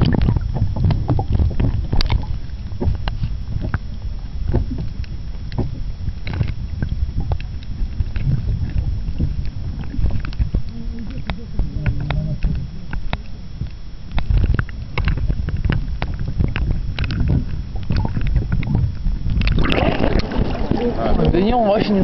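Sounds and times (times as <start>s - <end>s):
wind rumble on microphone: 0.0s - 22.0s
water lapping against pontoon: 19.4s - 22.0s.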